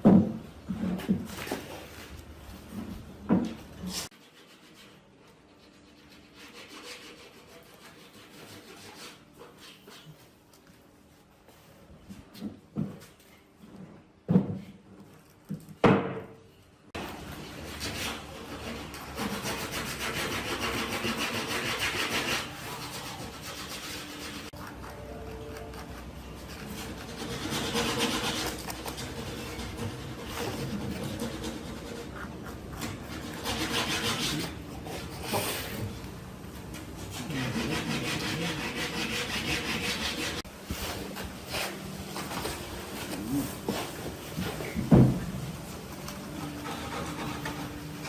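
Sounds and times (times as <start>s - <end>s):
scraping strokes on wood: 3.8s - 10.3s, 17.0s - 36.0s, 36.8s - 44.8s, 46.0s - 48.0s
wood being sawn by hand: 17.7s - 24.5s, 26.6s - 34.6s, 37.1s - 40.4s.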